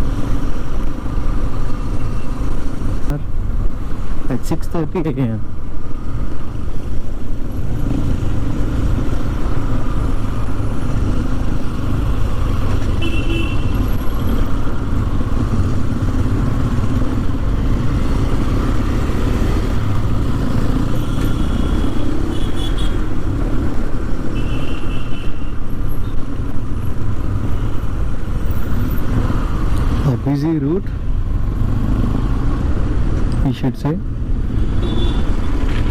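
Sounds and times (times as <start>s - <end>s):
motorcycle engine and road rumble: 0.0s - 35.9s
car horn beeps: 13.0s - 13.8s, 34.8s - 35.4s.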